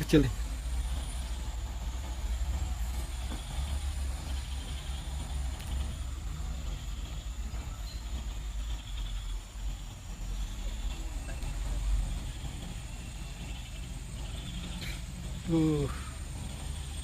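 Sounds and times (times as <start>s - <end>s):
diesel truck engine rumbling: 0.0s - 17.0s.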